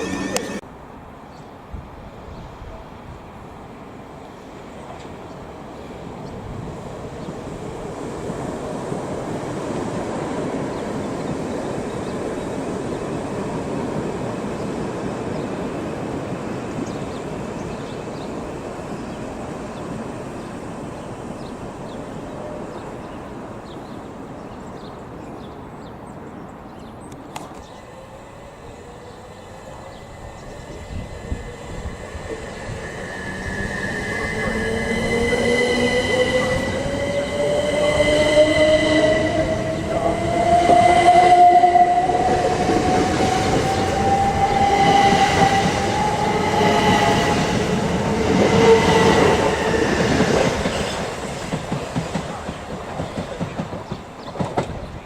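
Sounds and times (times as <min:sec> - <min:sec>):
train traction motor whine: 0:00.0 - 0:00.6
train wheel and rail rumble: 0:00.0 - 0:55.0.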